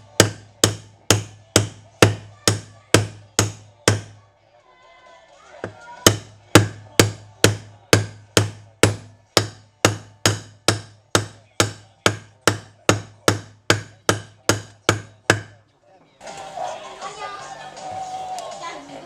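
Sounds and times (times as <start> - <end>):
hammer striking metal: 0.0 - 4.2, 6.1 - 15.6.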